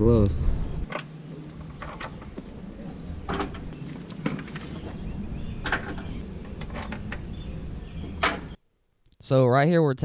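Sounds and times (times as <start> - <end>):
steady low hum: 0.0 - 8.8
tools and engine parts clattering: 0.8 - 2.5, 3.2 - 8.6.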